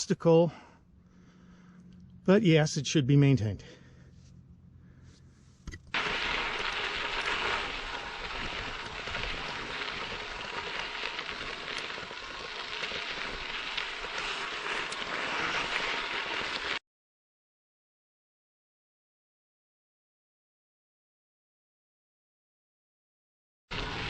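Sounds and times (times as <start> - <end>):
bike tyres rolling on gravel: 5.9 - 16.8, 23.7 - 24.0.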